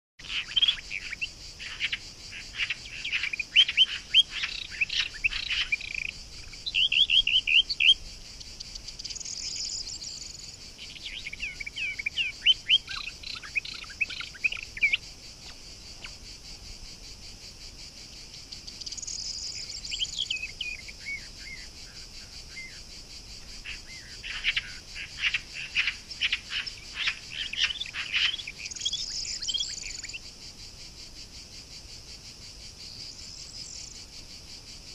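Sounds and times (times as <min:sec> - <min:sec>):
birds chirping: 0:00.2 - 0:16.4, 0:18.3 - 0:30.2
crickets droning: 0:00.2 - 0:34.9.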